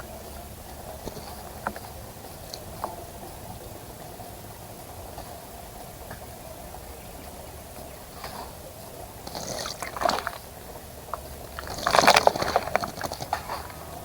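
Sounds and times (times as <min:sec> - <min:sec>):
bird splashing in water: 0:09.2 - 0:14.0.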